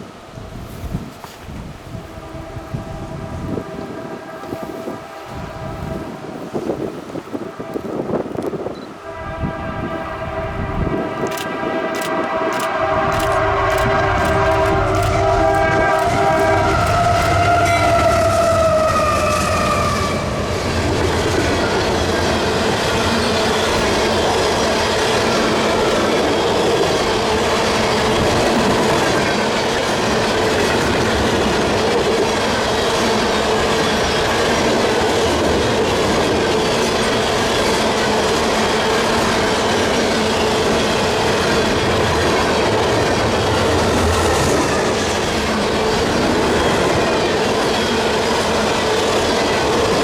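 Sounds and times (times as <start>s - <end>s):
train horn chord: 1.8s - 20.6s.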